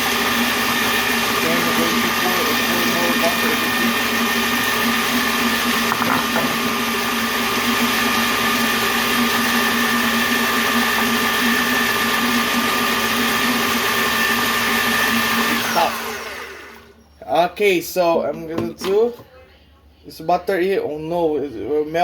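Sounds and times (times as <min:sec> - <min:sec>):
blender motor running: 0:00.0 - 0:17.0.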